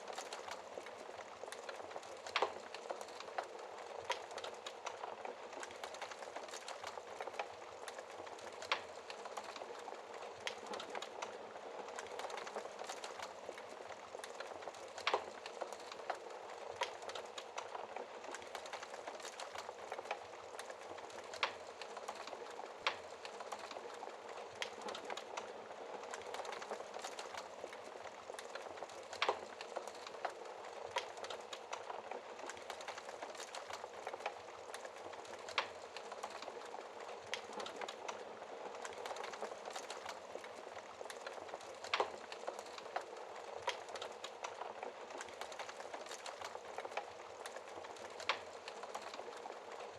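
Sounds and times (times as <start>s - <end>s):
fire crackles and pops: 0.0s - 49.9s.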